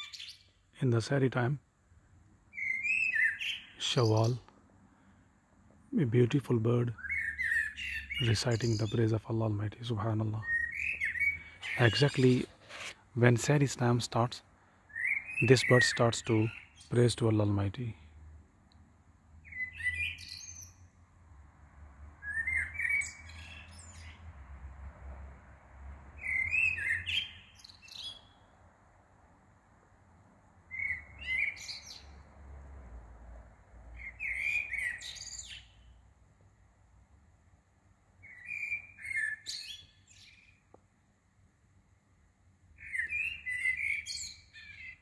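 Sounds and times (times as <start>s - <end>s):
songbird warbling: 2.5s - 4.4s, 6.9s - 9.2s, 10.0s - 12.9s, 42.8s - 45.0s.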